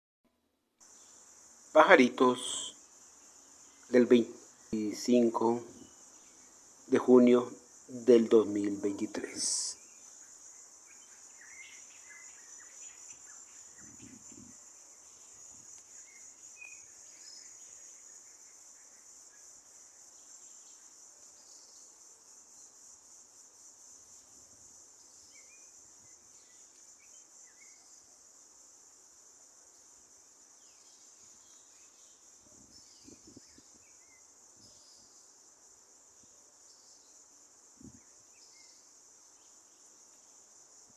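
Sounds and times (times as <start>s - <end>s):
insect chorus trilling: 0.8s - 40.9s
faint bird chirps: 8.6s - 22.0s.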